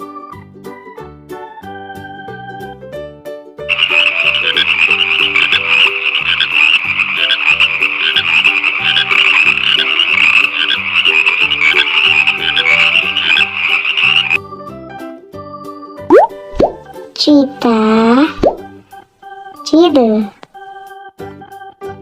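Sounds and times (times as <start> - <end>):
soft background music: 0.0 - 22.0
frogs croaking: 3.7 - 14.4.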